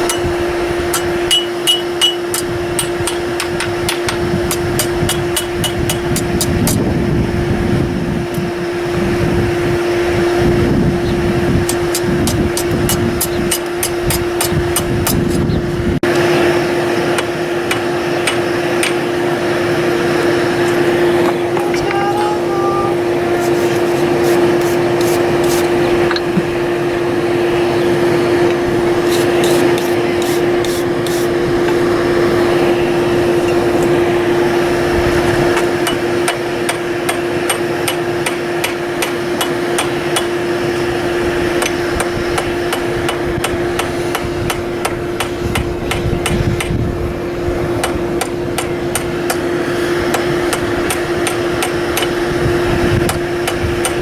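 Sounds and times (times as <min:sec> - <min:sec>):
hammer blows on iron anvil: 0:00.9 - 0:06.3.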